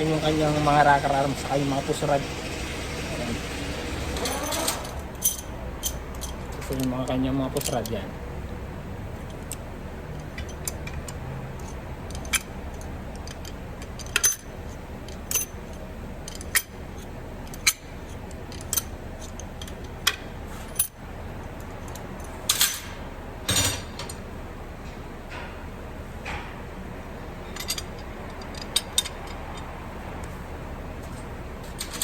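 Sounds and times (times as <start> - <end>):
light metallic clicks and clinks: 27.4 - 30.3.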